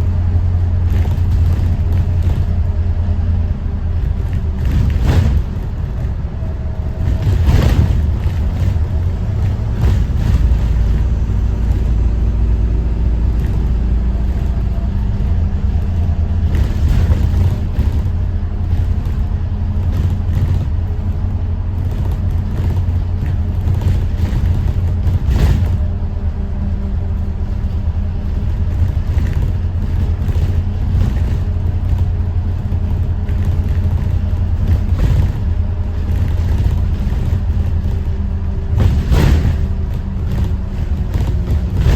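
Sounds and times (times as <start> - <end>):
diesel bus engine running: 0.0 - 41.9.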